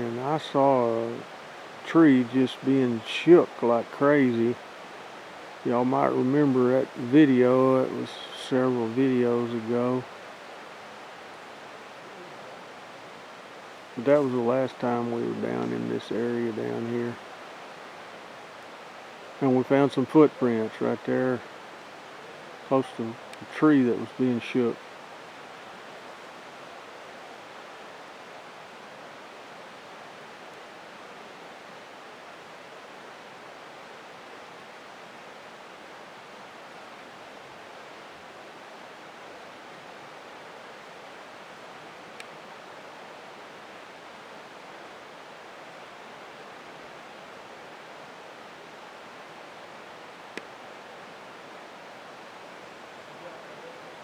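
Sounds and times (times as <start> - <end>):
creek water rushing: 0.0 - 54.0
faint tick: 42.2 - 42.4.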